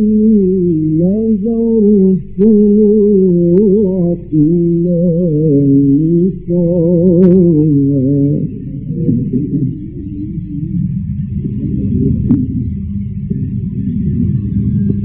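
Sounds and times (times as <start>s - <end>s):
man reciting melodically: 0.0s - 10.8s.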